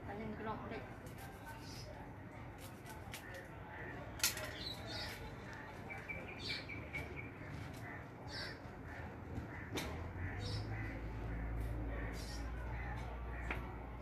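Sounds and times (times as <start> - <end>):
birds chirping: 3.1 - 14.0.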